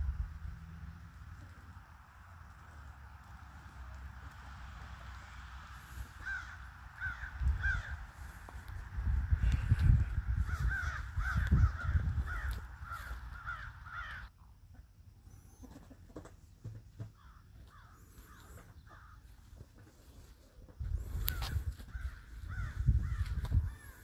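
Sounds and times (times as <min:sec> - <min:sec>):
low rumble on microphone: 0:00.0 - 0:03.5, 0:05.8 - 0:13.9, 0:20.8 - 0:24.0
harsh bird calls: 0:05.8 - 0:08.7, 0:09.3 - 0:14.3, 0:17.2 - 0:19.4, 0:20.9 - 0:24.0.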